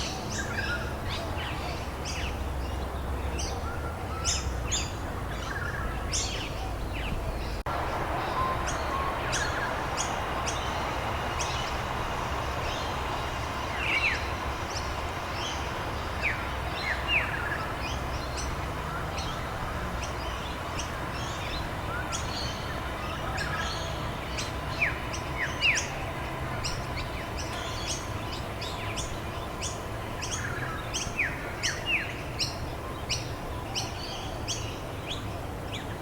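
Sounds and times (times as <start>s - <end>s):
birds chirping: 0.0s - 36.0s
rain hiss: 7.6s - 35.8s.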